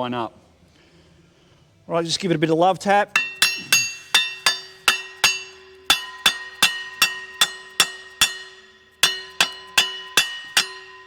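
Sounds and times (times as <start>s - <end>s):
hammer tapping ringing metal plate: 3.1s - 11.0s.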